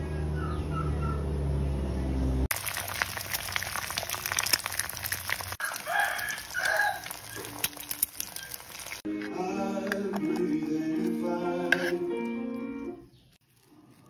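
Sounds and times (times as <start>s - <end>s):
egg sizzling in oil: 2.5s - 9.1s
music: 9.1s - 13.1s.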